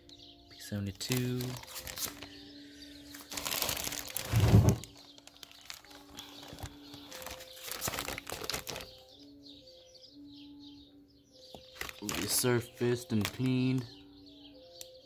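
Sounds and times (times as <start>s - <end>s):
packaging crinkling: 1.0s - 9.0s, 11.6s - 12.4s, 13.1s - 13.6s.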